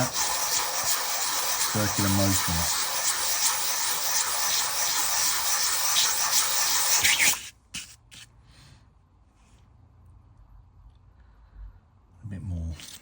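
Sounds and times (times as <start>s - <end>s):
metal sanding on emery paper: 0.0s - 8.2s.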